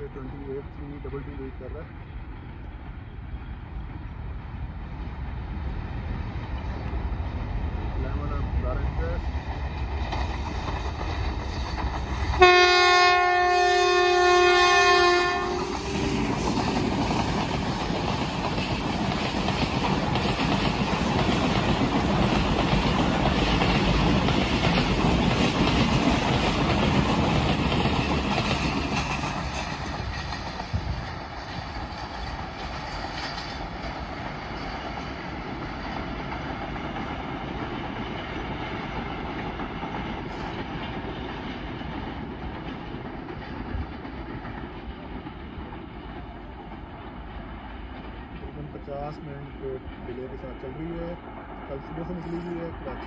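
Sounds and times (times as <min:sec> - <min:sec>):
distant train rumble: 0:00.0 - 0:53.0
train wheels clattering: 0:09.0 - 0:13.3, 0:14.9 - 0:51.1.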